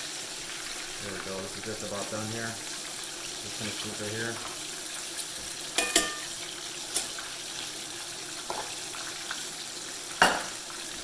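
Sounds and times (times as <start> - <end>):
chicken frying in oil: 0.0 - 11.0
metal utensil clinking on pot: 5.8 - 7.1.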